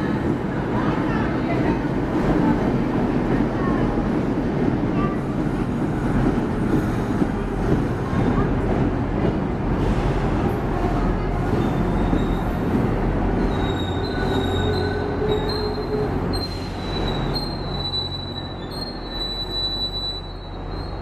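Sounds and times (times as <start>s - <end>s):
train wheels rumbling: 0.0s - 21.0s
high-pitched wheel squeals: 13.4s - 21.0s.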